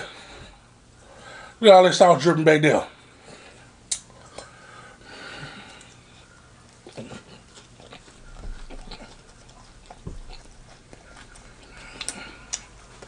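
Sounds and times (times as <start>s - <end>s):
man chewing sandwich: 3.1s - 13.0s
sharp mouth clicks: 3.9s - 4.5s.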